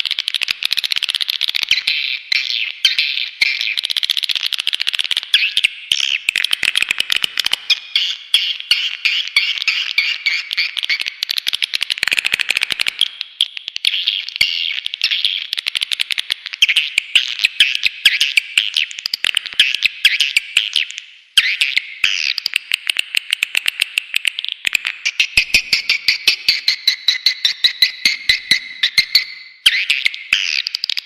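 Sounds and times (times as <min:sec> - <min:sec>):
swiftlet chirps and twitters: 0:24.9 - 0:30.6.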